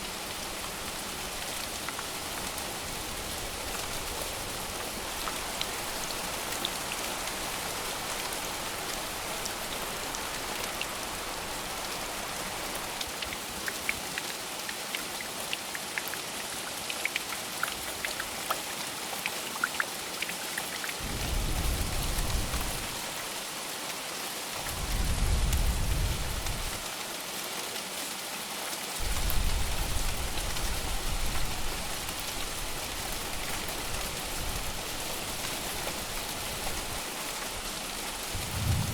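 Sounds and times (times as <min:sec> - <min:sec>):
rain drops ticking: 0:00.0 - 0:23.5, 0:24.5 - 0:27.2, 0:29.0 - 0:38.9
steady rain: 0:00.0 - 0:38.9
distant thunder rumbles: 0:21.0 - 0:23.2, 0:24.7 - 0:26.8, 0:38.2 - 0:38.9.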